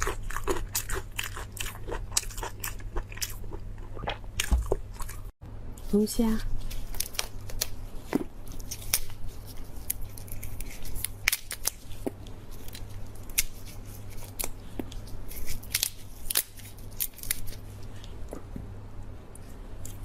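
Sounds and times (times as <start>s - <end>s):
lobster shell snipping and cracking: 9.8s - 17.6s.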